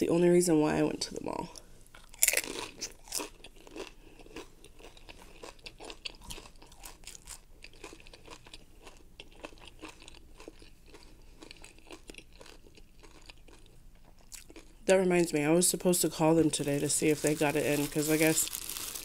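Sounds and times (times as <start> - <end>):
person chewing crunchy tortilla: 1.9 - 14.8, 18.5 - 19.0.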